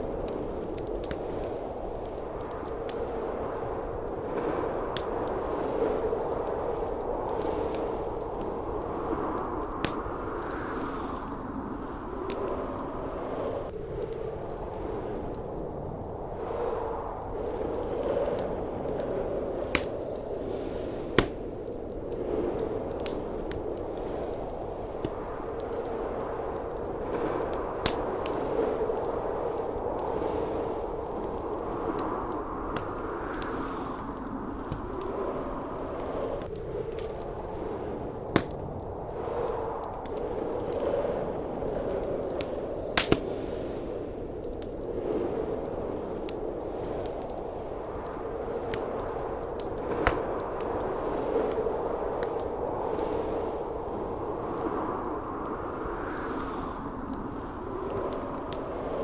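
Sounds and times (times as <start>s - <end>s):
blizzard wind howling: 0.0s - 59.0s
wood fire crackling: 0.0s - 59.0s
loud sharp fire pops: 38.3s - 38.6s, 43.0s - 43.3s.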